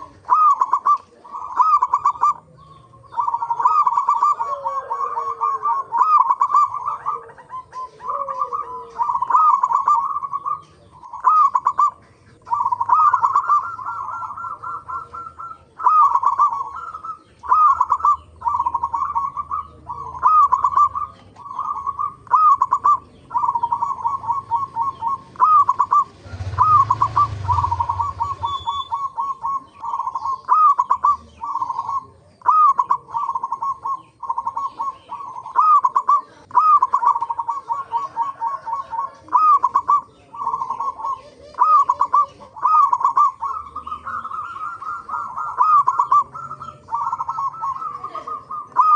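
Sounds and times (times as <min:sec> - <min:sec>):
dove cooing: 0:00.0 - 0:48.9
low rumble with hiss: 0:00.0 - 0:48.9.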